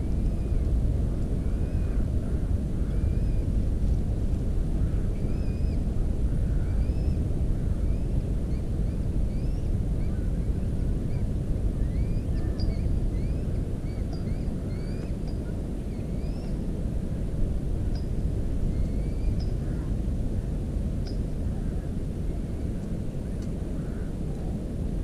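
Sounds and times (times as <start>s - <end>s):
faint chirping bird calls: 6.5s - 16.6s, 18.7s - 19.9s.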